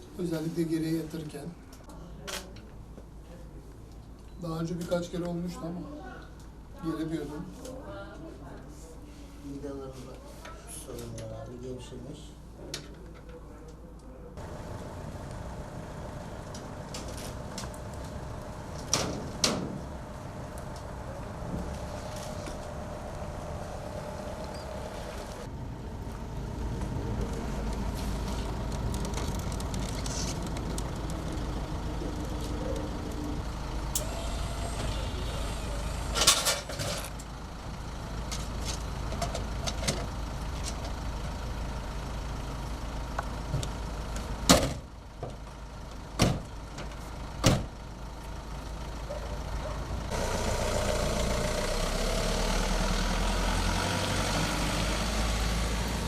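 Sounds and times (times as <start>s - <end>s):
low mechanical hum: 12.4s - 52.4s.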